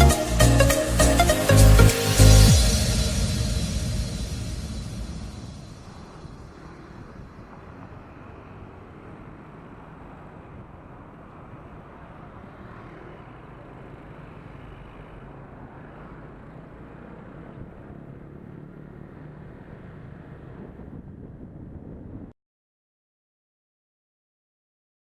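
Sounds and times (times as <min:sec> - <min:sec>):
road and wind noise: 0:00.0 - 0:22.4
motorbike engine hum: 0:05.8 - 0:22.3.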